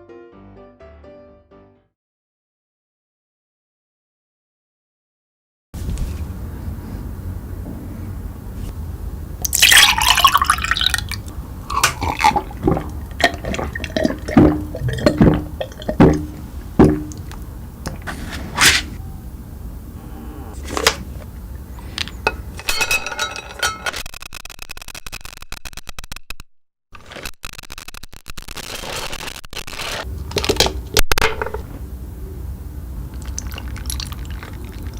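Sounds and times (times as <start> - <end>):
liquid pouring and dripping: 9.4 - 18.1, 33.2 - 34.9
knocks and clinks: 22.2 - 24.0
crackling: 27.0 - 31.7.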